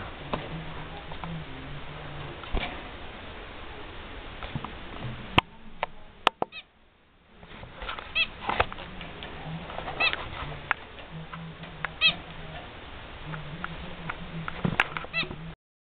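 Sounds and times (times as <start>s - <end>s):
finch nasal calls: 8.0s - 8.5s, 9.4s - 12.6s, 13.3s - 15.5s.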